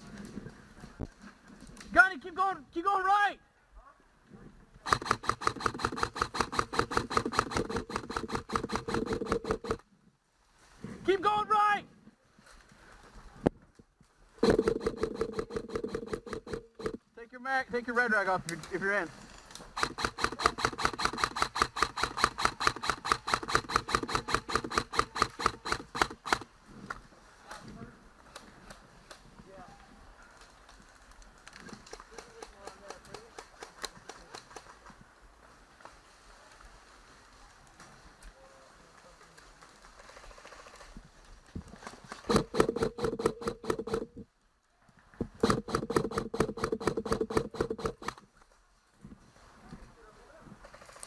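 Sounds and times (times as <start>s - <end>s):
airsoft gun firing bursts: 4.8s - 9.8s, 14.4s - 17.0s, 19.7s - 26.5s, 42.1s - 44.2s, 45.4s - 48.2s.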